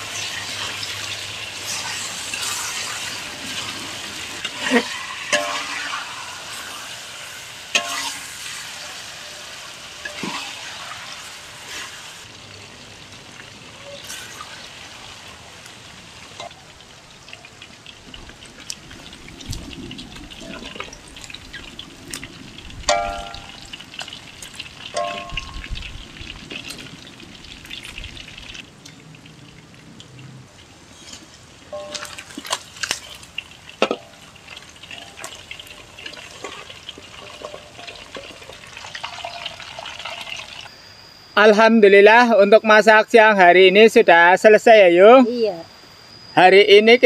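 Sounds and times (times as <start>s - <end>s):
chicken sizzling in hot oil: 0.0s - 41.2s
metal spatula scraping and clanking: 4.4s - 6.8s, 7.7s - 10.7s, 36.0s - 38.6s.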